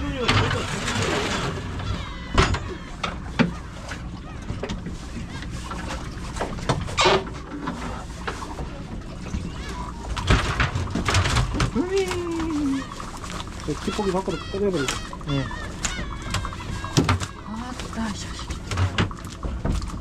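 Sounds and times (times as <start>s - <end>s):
boat engine running: 11.7s - 19.2s
sharp knocks and thumps: 16.9s - 17.4s.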